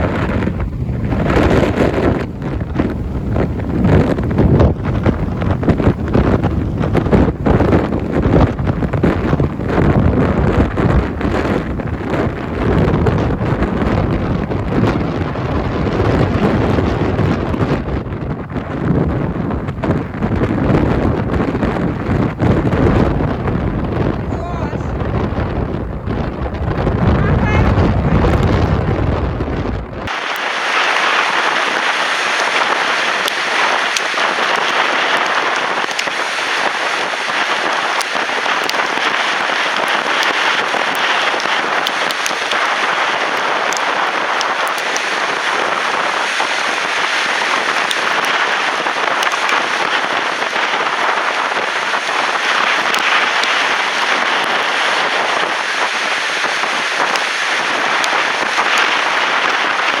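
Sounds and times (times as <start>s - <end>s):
strong wind rushing: 0.0s - 60.0s
sharp crackles: 25.8s - 60.0s.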